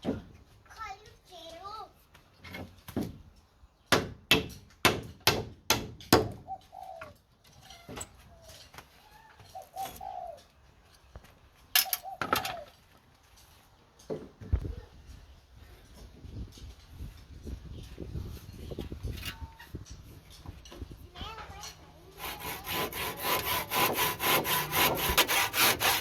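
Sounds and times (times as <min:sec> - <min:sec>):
birds calling: 0:06.4 - 0:07.2, 0:08.3 - 0:13.0.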